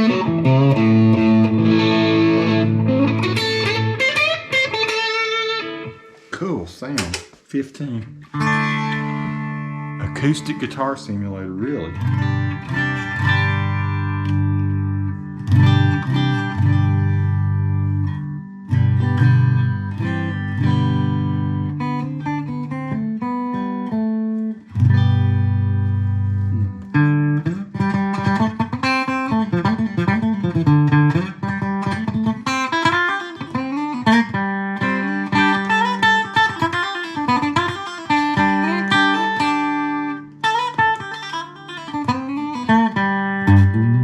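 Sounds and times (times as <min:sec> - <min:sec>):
electric guitar chords and notes: 0:00.0 - 0:06.3, 0:08.0 - 0:44.0.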